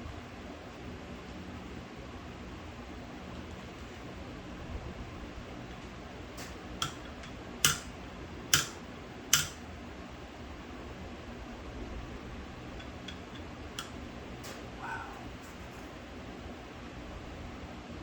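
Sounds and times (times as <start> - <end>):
metallic clicks of small parts: 5.7 - 9.6, 12.8 - 14.6.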